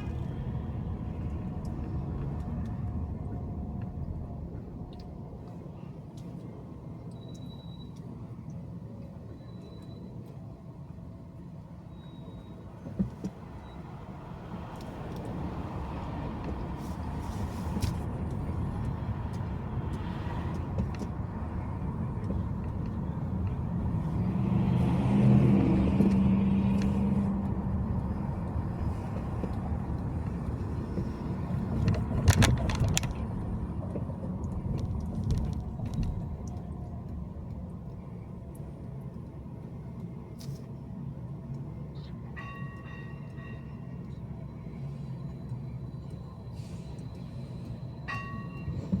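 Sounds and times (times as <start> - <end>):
car road and engine noise: 0.0 - 49.0.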